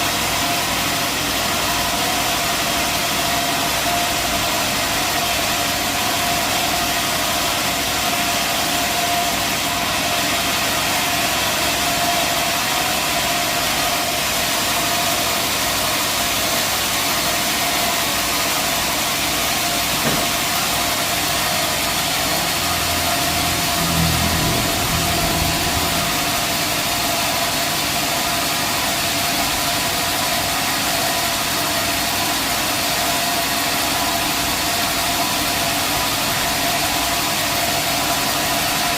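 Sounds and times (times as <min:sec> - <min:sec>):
sawmill machinery drone: 0:00.0 - 0:38.9
steady high tone: 0:20.1 - 0:28.3
deep hum: 0:21.7 - 0:27.6.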